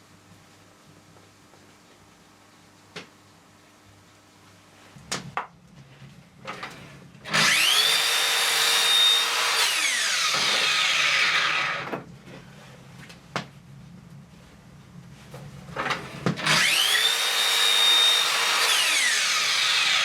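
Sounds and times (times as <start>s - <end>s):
power tool whining and cutting: 7.3s - 12.0s, 16.4s - 20.0s.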